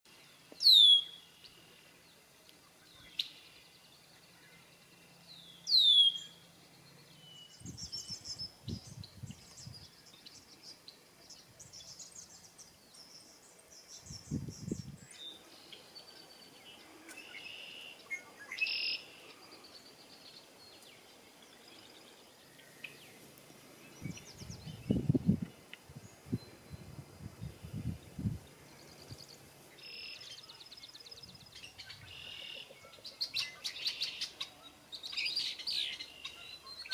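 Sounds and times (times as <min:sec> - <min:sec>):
blackbird whistles sweeping downward: 0:00.6 - 0:01.1.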